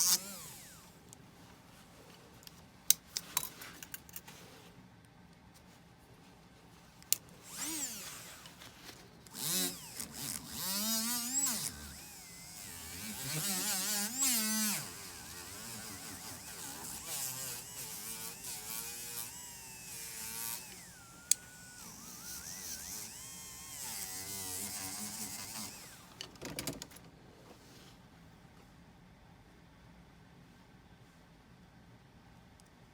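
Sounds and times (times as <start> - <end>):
rotary tool whining: 0.0 - 1.0, 7.1 - 26.2.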